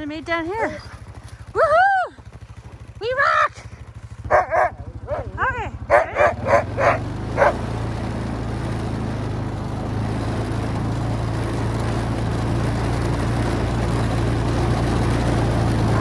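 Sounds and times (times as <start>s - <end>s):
quad engine running: 0.0s - 16.0s
dog barking: 0.6s - 1.0s, 4.3s - 7.6s.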